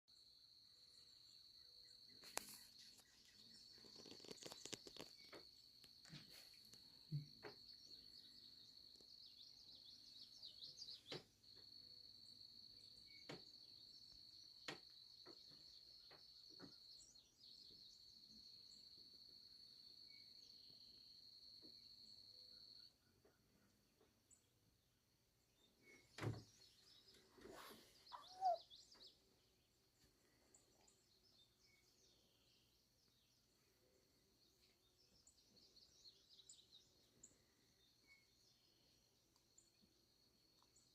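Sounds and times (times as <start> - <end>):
birds chirping and calling: 26.9 - 29.2.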